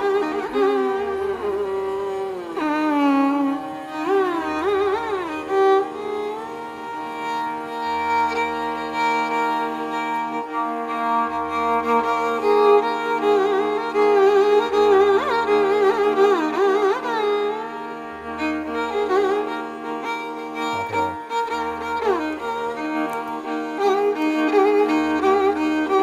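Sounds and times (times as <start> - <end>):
bowed string melody: 0.0 - 26.0
steady drone: 20.5 - 23.0.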